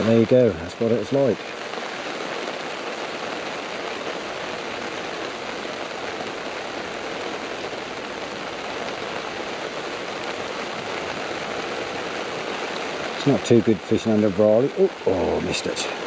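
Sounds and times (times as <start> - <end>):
heavy rain on water and umbrella: 0.0 - 16.0.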